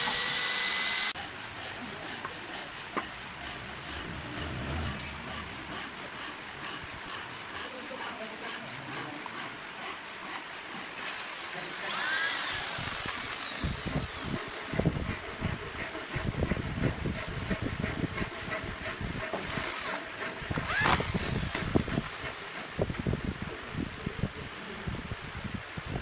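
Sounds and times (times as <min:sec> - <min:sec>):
power drill driving screws: 0:00.0 - 0:01.2, 0:11.0 - 0:14.5, 0:19.4 - 0:22.4.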